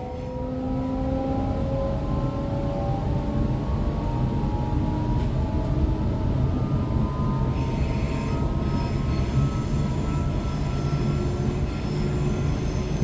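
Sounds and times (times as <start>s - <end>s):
traction motor whine: 5.0s - 13.0s
train wheels rumbling on track: 5.1s - 13.0s.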